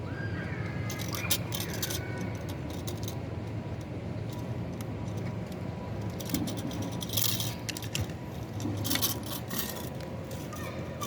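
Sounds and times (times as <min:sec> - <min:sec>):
metal tools clinking: 0:00.9 - 0:03.2, 0:06.0 - 0:11.0.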